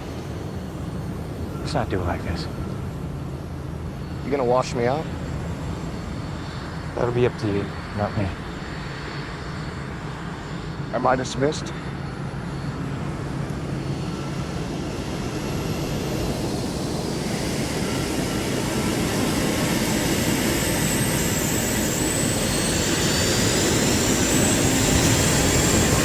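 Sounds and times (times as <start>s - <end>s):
high turbine whine: 0.0s - 26.0s
jet engines roaring: 0.0s - 26.0s.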